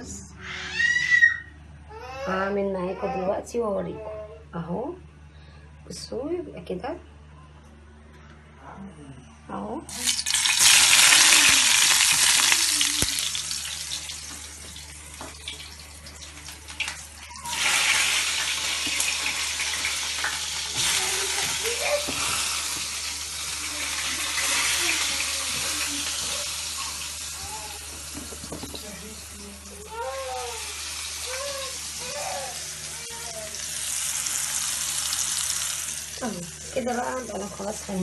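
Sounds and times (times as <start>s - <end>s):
eggplant frying in hot oil: 9.9s - 38.0s.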